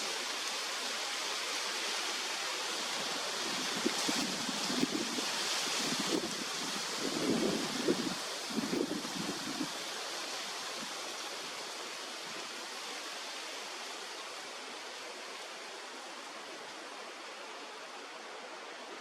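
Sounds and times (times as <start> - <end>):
stream water flowing: 0.0 - 19.0
wind buffeting microphone: 3.4 - 9.8.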